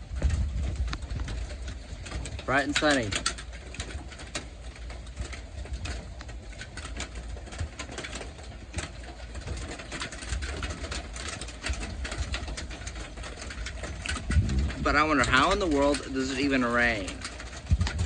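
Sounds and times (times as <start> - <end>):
steady low rumble: 0.0 - 2.6, 13.7 - 18.0
rain drops pattering: 0.0 - 18.0.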